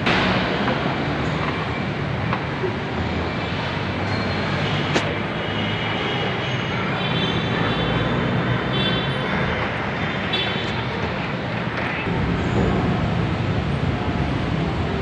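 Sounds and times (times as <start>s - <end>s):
rumbling background noise: 9.2s - 15.0s.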